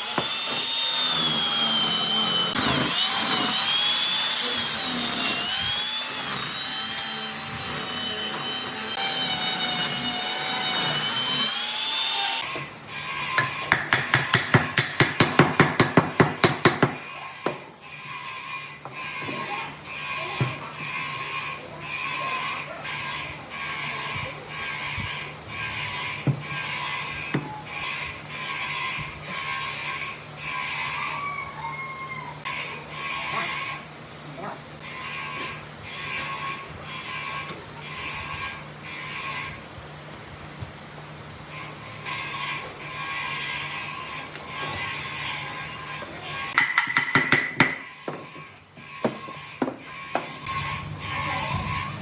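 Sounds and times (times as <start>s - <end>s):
power tool whining: 0.0s - 14.9s.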